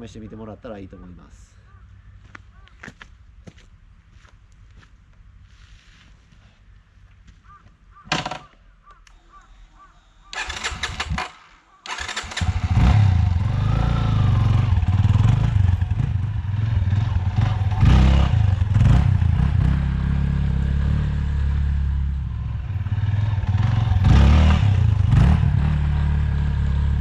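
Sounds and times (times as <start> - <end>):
motorcycle engine revving: 10.4 - 27.0.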